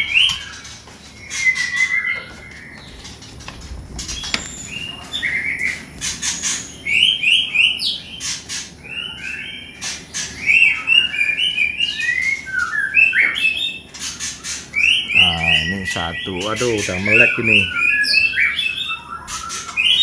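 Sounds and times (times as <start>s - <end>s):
birds chirping: 0.0s - 20.0s
sharp knocks and clicks: 3.4s - 4.8s.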